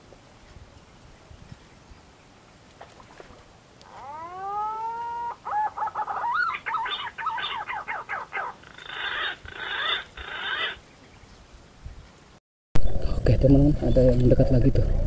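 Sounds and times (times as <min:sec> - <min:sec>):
bird calling: 0:02.8 - 0:12.2.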